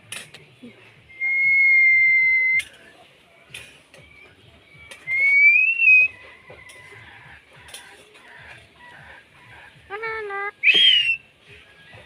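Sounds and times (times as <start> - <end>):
person whistling: 1.1 - 2.6, 5.1 - 6.1, 10.6 - 11.2.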